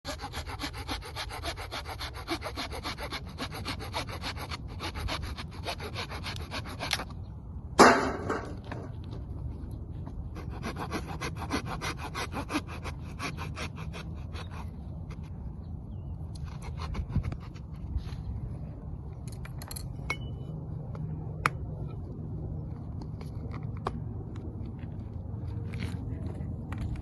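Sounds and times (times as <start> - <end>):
hand saw cutting wood: 0.1 - 7.1, 10.3 - 15.2.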